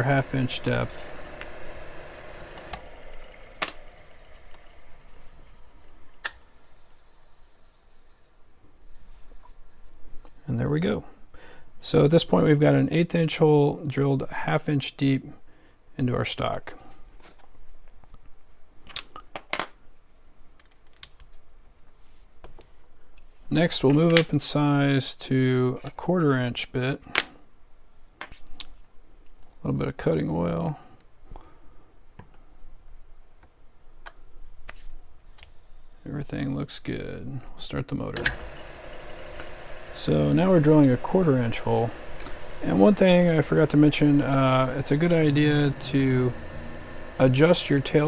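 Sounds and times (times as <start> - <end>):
lathe drilling into metal: 0.0 - 5.7, 38.2 - 48.0.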